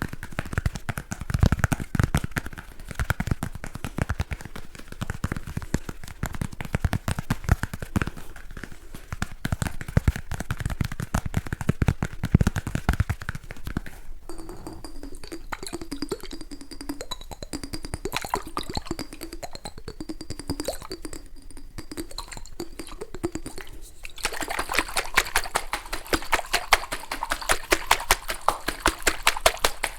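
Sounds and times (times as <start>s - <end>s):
rapid tapping on object: 0.0s - 29.9s
ringing tones: 14.3s - 24.1s.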